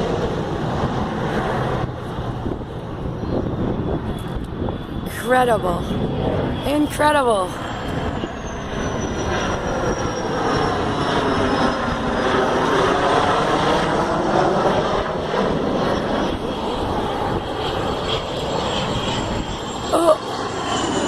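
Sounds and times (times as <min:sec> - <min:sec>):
jets passing overhead: 0:00.0 - 0:21.0.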